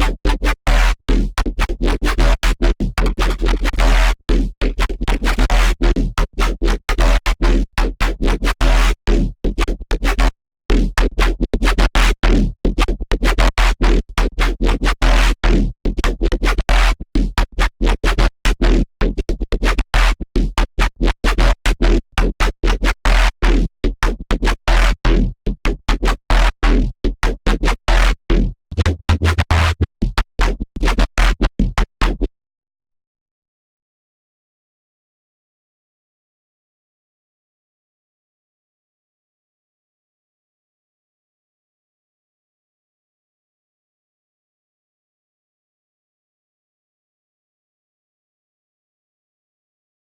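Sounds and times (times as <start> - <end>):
deep sub-bass: 28.3 - 30.0
stuttering synth notes: 28.7 - 29.9.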